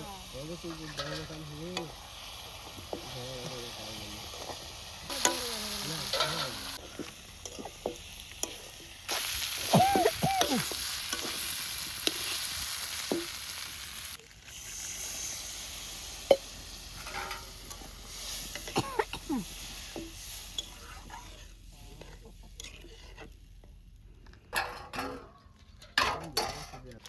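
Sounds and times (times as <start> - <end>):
food sizzling in a pan: 0.0 - 23.3
utensil scraping a pan: 0.6 - 9.5, 16.9 - 18.8, 19.8 - 23.4.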